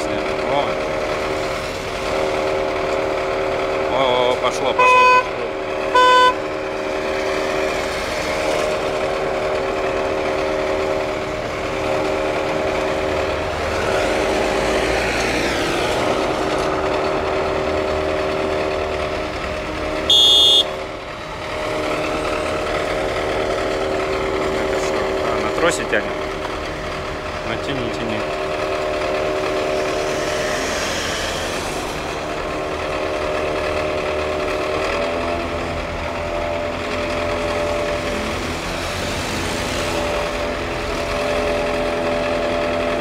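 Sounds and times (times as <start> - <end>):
vehicle engine running: 0.0 - 43.0
short loud beep: 20.1 - 20.7.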